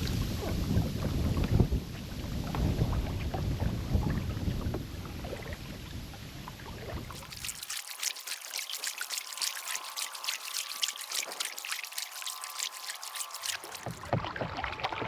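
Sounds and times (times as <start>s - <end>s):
wind rumbling on microphone: 0.0s - 7.2s
water trickling: 7.0s - 14.6s.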